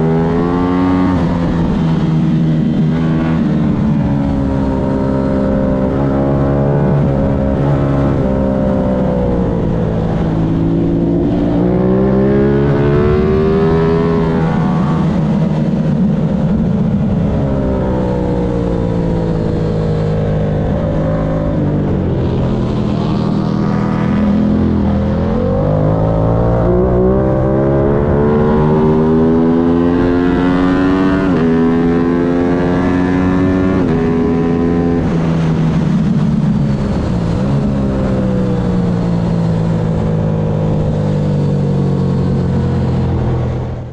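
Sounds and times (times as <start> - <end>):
racing motorcycle engine revving: 0.0 - 43.9.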